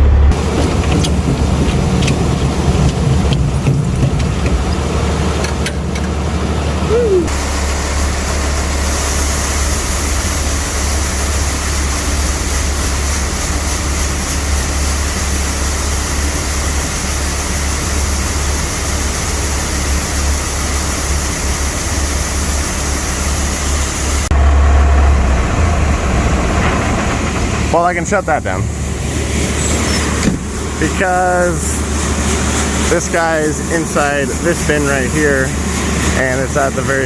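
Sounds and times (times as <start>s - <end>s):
truck diesel engine rumbling: 0.0s - 37.0s
hiss: 6.9s - 24.3s.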